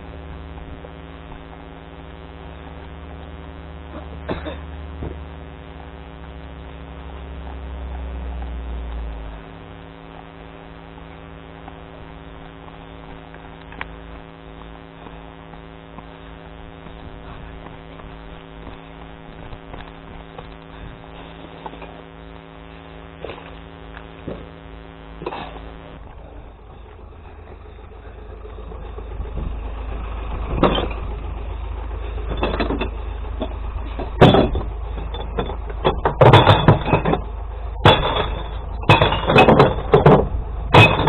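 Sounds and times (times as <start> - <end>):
deep rumble: 0.0 - 41.0
engine drone: 0.0 - 41.0
sharp knocks: 34.0 - 34.7.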